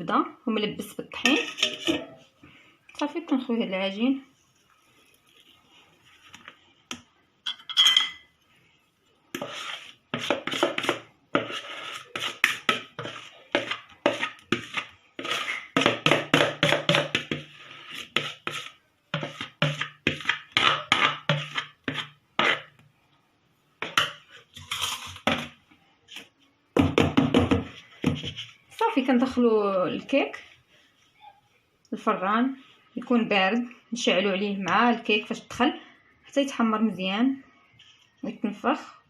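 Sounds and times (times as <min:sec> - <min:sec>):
utensil scraping mixing bowl: 0:01.2 - 0:02.2, 0:09.3 - 0:22.8.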